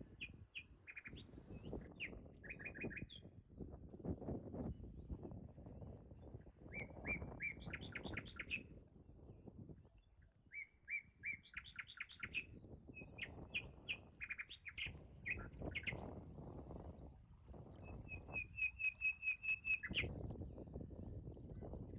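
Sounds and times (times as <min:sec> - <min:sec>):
songbird singing: 0:00.0 - 0:03.3, 0:06.7 - 0:08.7, 0:10.0 - 0:16.1, 0:17.7 - 0:20.2.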